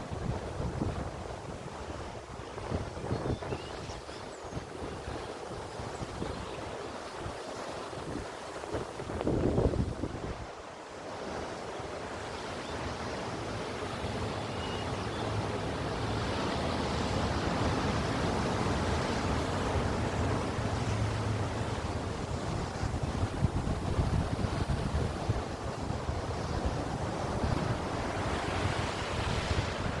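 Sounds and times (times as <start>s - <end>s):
sea waves breaking: 6.8s - 30.0s
wind buffeting microphone: 8.0s - 10.5s, 17.6s - 30.0s.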